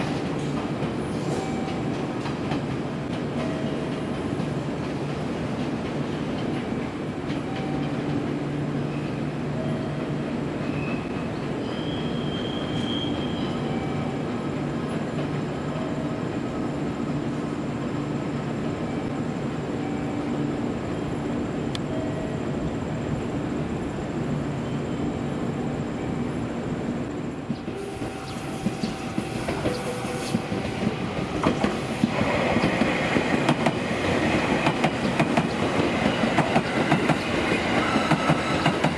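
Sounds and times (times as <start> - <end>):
train rumbling on rails: 0.0 - 38.9
high wheel squeals: 10.6 - 14.1.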